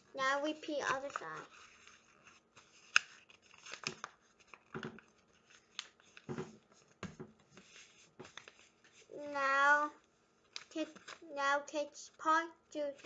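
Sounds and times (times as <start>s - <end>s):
paper being folded: 0.0s - 9.3s, 10.4s - 11.3s.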